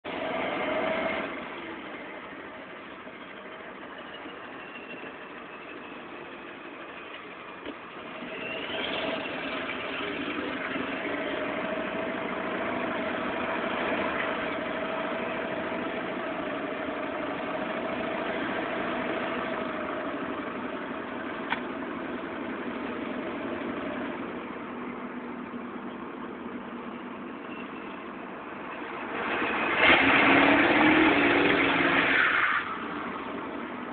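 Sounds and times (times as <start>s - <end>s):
truck engine running in tunnel: 0.0s - 33.9s
turbocharger whistling: 2.8s - 7.2s, 8.2s - 20.9s, 26.9s - 33.2s.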